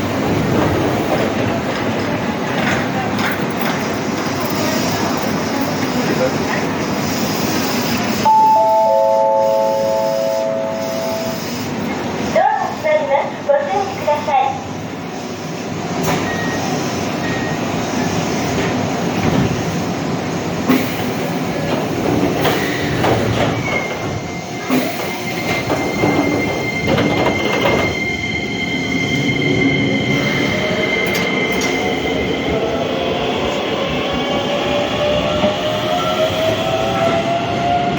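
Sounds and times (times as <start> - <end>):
train wheels clicking on rail joints: 0.3 - 8.1, 20.6 - 28.3, 30.1 - 32.2.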